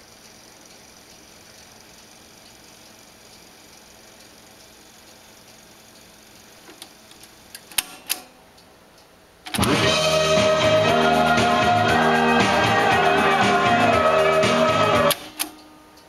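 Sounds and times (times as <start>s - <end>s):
mechanical clicks: 5.5s - 10.0s, 15.1s - 16.0s
music from cassette player: 9.5s - 15.8s.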